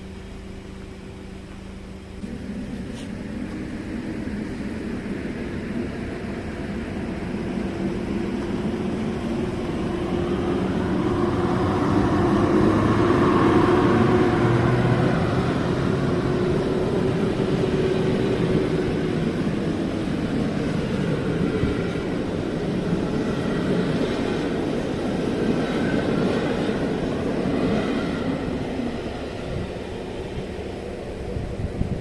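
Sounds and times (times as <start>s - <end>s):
passenger train passing: 0.0s - 32.0s
low tone sliding down: 2.2s - 24.5s.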